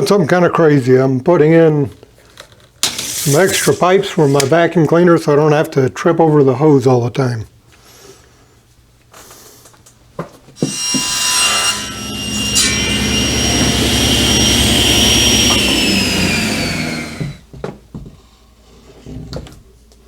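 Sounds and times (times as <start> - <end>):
electric saw whining: 2.8 - 4.5, 10.6 - 17.5
saw motor winding down: 2.9 - 4.4, 10.7 - 17.4.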